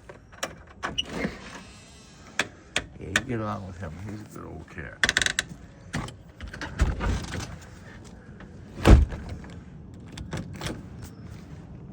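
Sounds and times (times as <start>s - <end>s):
heavy thump: 8.8s - 9.5s.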